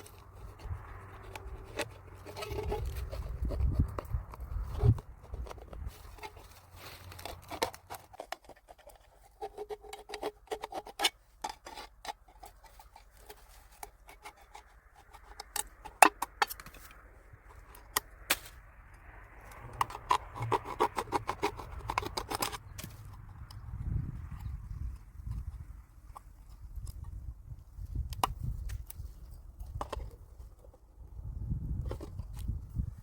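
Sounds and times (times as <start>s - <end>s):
small hard objects clicking and tapping: 0.0s - 18.5s, 19.5s - 24.6s.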